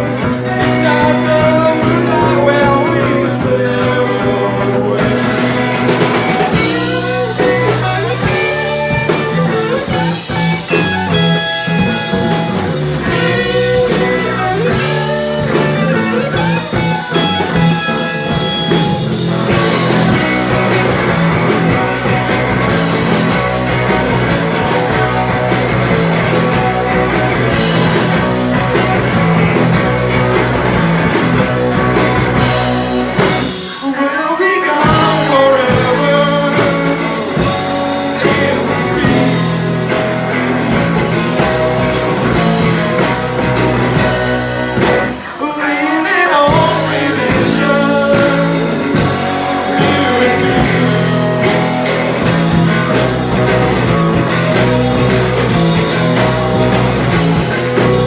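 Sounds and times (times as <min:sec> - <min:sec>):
bass guitar: 0:00.0 - 0:58.0
drum kit: 0:00.0 - 0:58.0
electric guitar lines: 0:00.0 - 0:58.0.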